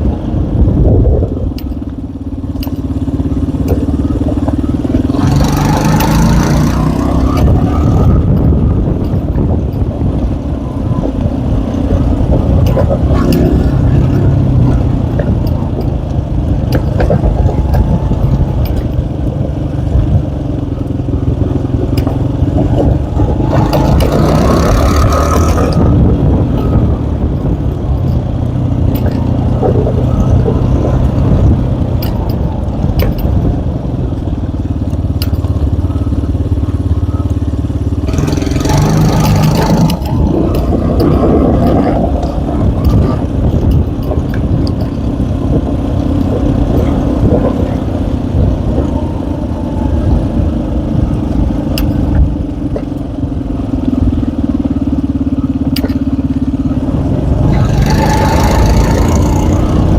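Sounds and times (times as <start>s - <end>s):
small motorcycle engine running: 0.0s - 59.9s
clicks and rattles: 1.5s - 9.9s, 11.1s - 20.3s, 21.5s - 36.0s, 38.0s - 49.1s, 51.1s - 53.1s, 55.7s - 56.3s.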